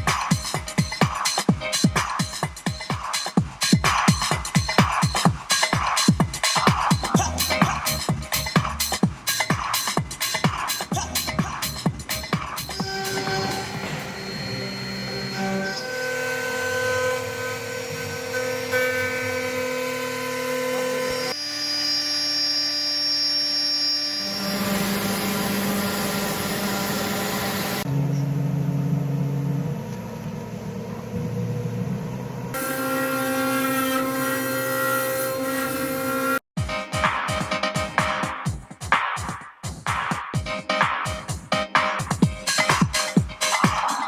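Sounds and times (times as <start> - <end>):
cnc router whining: 12.8 - 36.4.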